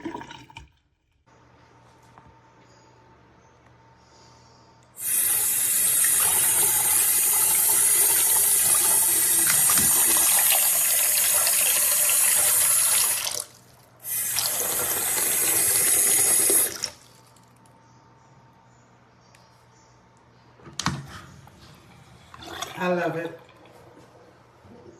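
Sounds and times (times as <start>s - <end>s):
tap running into sink: 8.6s - 10.6s.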